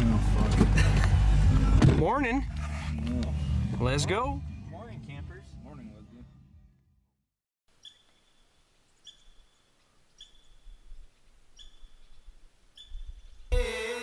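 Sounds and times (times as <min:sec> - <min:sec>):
faint bird chirp: 0:07.7 - 0:13.6.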